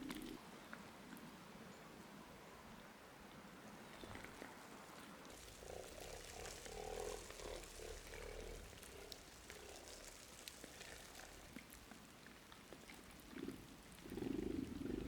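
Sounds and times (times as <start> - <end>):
cat low croaking: 0.0 - 0.4, 13.3 - 15.0.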